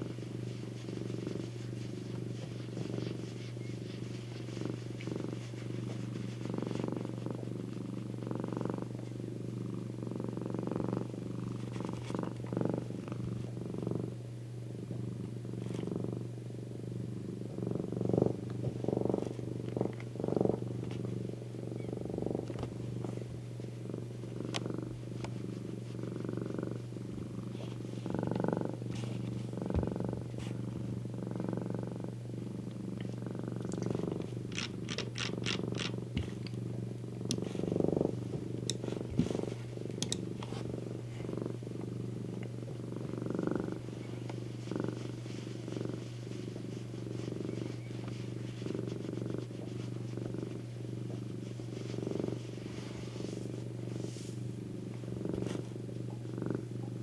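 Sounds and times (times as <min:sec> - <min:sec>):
cat purring: 0:00.0 - 0:57.0.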